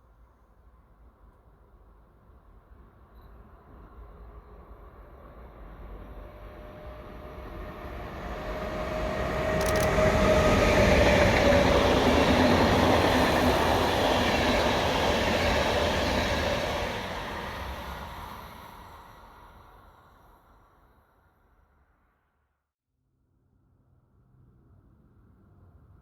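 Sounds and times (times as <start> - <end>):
train rolling on rails: 3.7 - 20.0.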